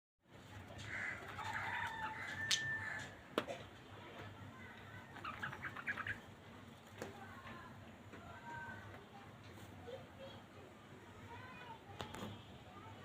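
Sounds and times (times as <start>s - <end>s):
budgerigars chirping: 5.2s - 6.2s.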